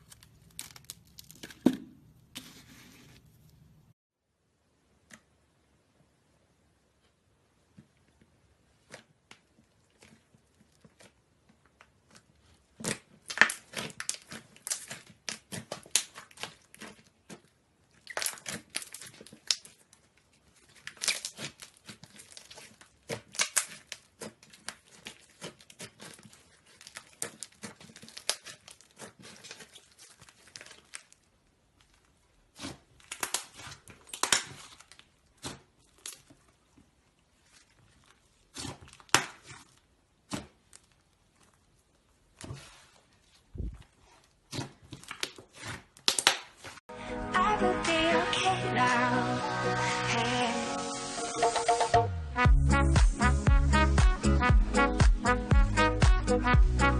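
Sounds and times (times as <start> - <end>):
slime crackling and popping: 0.0 - 1.6, 8.8 - 42.5, 44.5 - 46.8.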